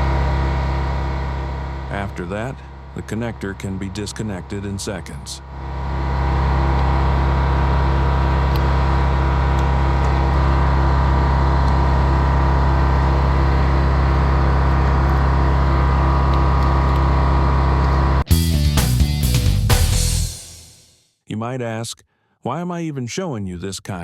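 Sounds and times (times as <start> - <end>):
engine running with low hum: 0.0 - 18.4.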